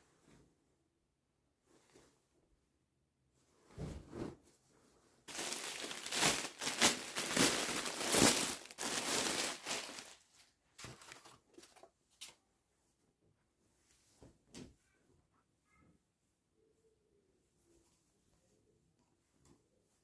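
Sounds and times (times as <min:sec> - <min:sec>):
plastic packaging crinkling: 0:05.3 - 0:11.9.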